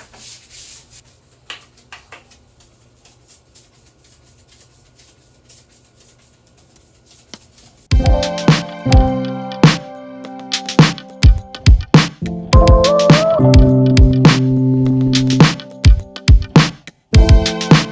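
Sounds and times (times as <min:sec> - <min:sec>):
soft rubbing strokes: 0:00.0 - 0:07.9.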